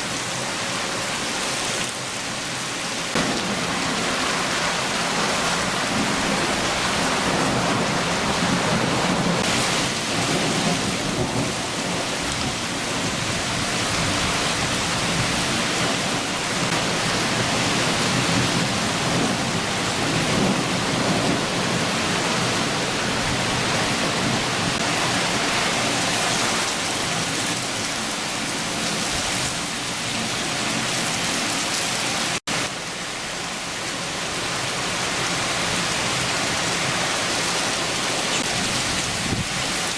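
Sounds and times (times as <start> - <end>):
heavy rain: 0.0 - 39.9
low thunder rumbling: 3.2 - 27.7.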